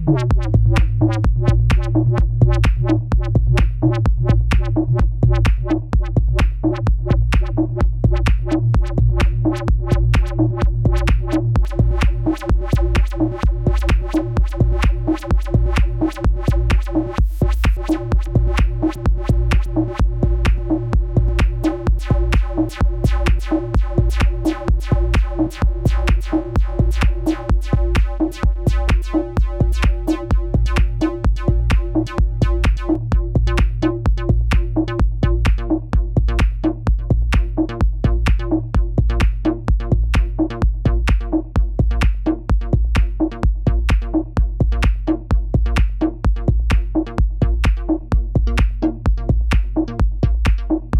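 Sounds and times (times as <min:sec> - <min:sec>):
deep sustained bass: 0:00.0 - 0:50.9
drum machine beat: 0:00.0 - 0:50.9
repeating synth pattern: 0:10.2 - 0:33.2.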